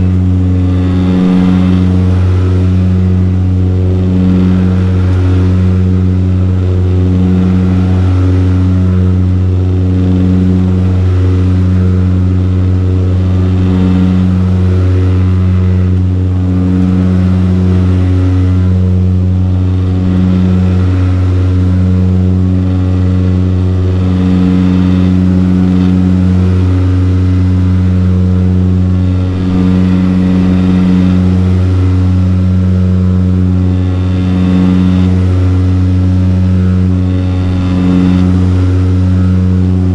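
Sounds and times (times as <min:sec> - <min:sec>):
throbbing propeller tone: 0:00.0 - 0:39.9
turboprop engine drone: 0:00.0 - 0:39.9.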